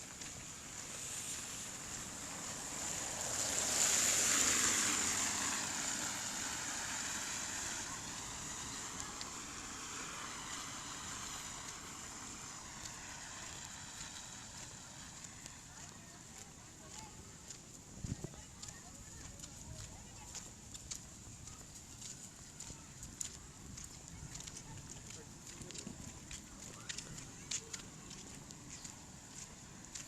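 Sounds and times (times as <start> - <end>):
steady rain: 0.0 - 15.7
vehicle tyres hissing on wet road: 0.0 - 30.0.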